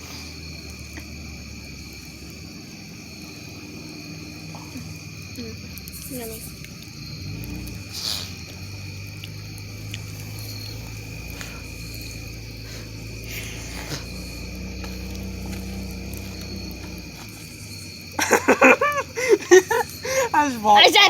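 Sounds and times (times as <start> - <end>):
campfire popping: 0.0 - 21.0
crickets chirping: 0.0 - 21.0
low hum: 3.5 - 19.6.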